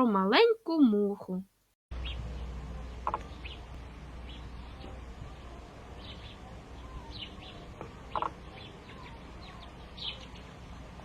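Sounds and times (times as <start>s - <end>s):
steady low hum: 1.9s - 11.0s
small birds chirping: 2.0s - 2.2s, 2.8s - 11.0s.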